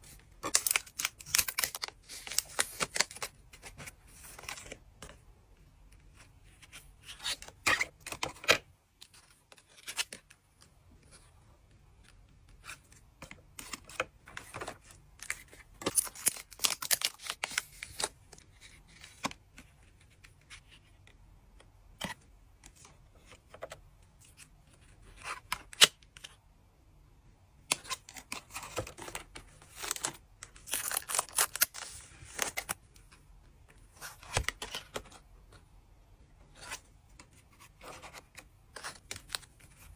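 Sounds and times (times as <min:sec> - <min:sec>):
cards rustling and clicking: 0:00.4 - 0:05.2, 0:12.0 - 0:21.1, 0:27.6 - 0:33.2, 0:33.9 - 0:35.6, 0:36.6 - 0:39.9
card packs tearing: 0:15.9 - 0:18.0, 0:29.7 - 0:32.8.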